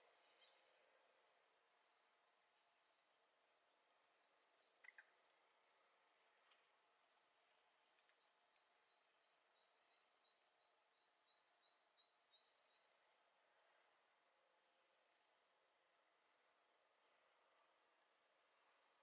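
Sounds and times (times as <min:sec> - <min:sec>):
small bird high thin chirps: 0:04.6 - 0:12.8.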